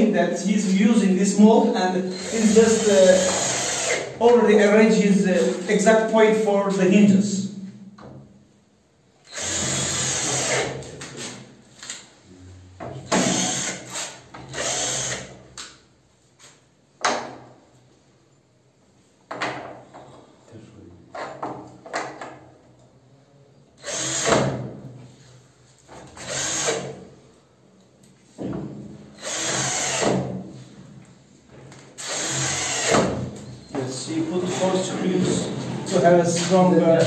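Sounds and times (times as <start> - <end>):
drill driving screws: 2.1 - 4.2, 9.2 - 12.0, 13.0 - 15.4, 23.8 - 24.6, 26.1 - 27.0, 29.2 - 30.3, 32.0 - 33.2.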